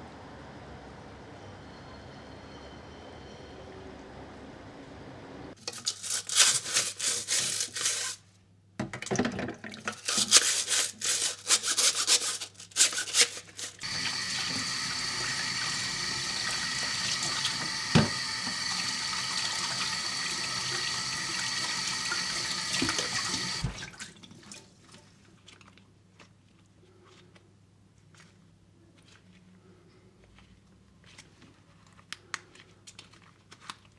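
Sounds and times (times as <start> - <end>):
tap water running and splashing: 5.6 - 8.2, 9.0 - 25.0.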